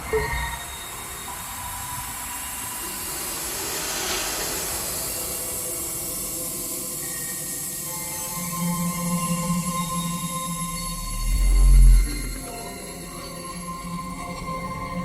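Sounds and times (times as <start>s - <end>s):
faint sustained tones: 0.0s - 15.0s.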